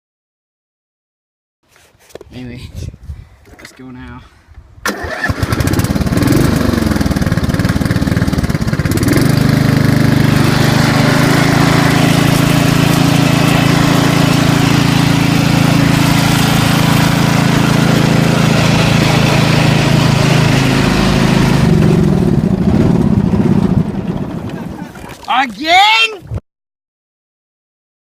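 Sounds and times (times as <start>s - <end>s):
lawn tractor engine running: 4.9s - 25.5s.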